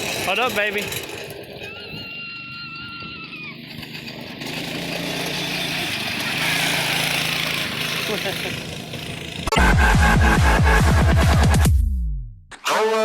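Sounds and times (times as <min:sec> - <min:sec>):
go-kart motor running: 0:00.0 - 0:10.2.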